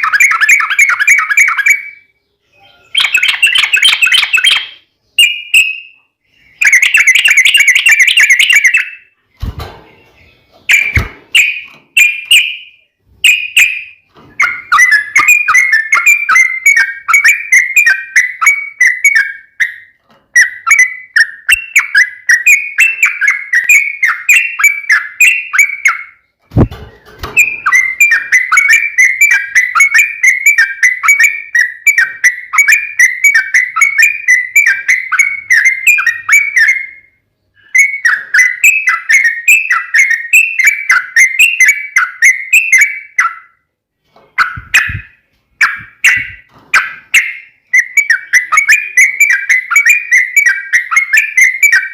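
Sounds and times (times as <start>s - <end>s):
bird chattering song: 0.0s - 43.6s, 44.3s - 51.9s.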